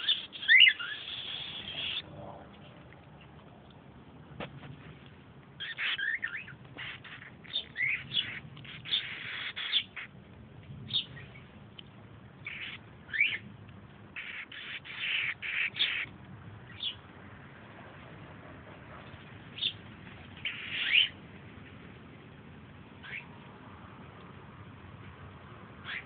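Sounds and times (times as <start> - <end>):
baby bird chirping: 0.0 - 2.0, 5.6 - 10.1, 12.4 - 13.4, 14.2 - 16.1, 20.4 - 21.2.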